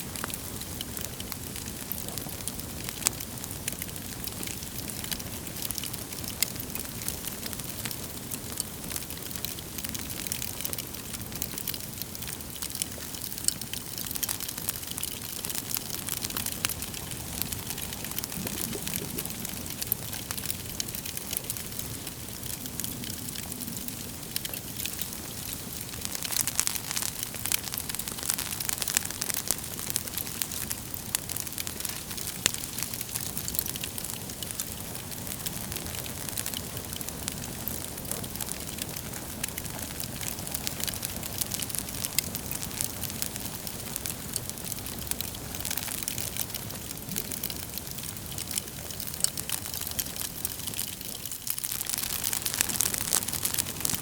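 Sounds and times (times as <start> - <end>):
logs crackling and popping: 0.0 - 54.0
low rush of flame: 16.0 - 25.1.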